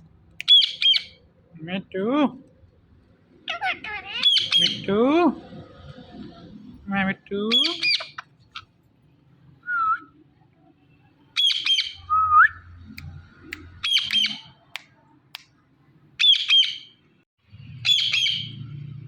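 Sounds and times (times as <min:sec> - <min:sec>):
parrot squawking harshly: 0:03.4 - 0:04.9, 0:07.5 - 0:08.7.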